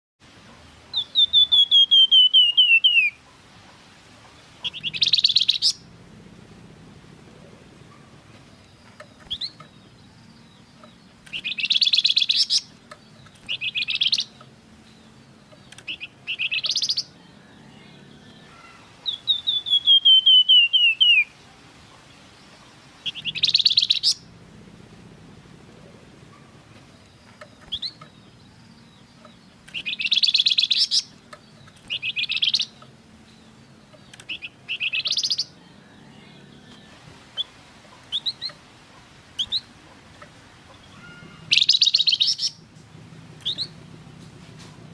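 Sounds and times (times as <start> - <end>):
songbird whistling phrases: 0.9 - 3.2, 15.9 - 21.4, 29.8 - 31.1, 34.3 - 37.5, 40.9 - 42.6
faint low hum: 3.1 - 44.9.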